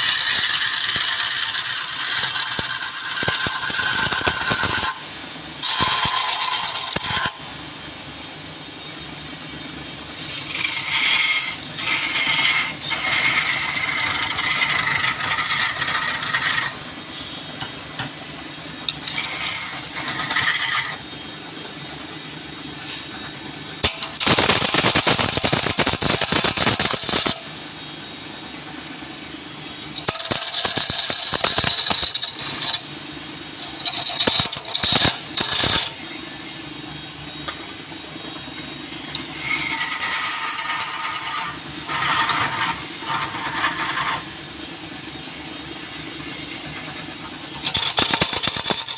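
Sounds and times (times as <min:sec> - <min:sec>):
tool cutting spinning wood: 0:00.0 - 0:07.9, 0:09.6 - 0:36.4, 0:37.3 - 0:48.9
lathe motor hum: 0:10.1 - 0:27.6, 0:28.4 - 0:48.9.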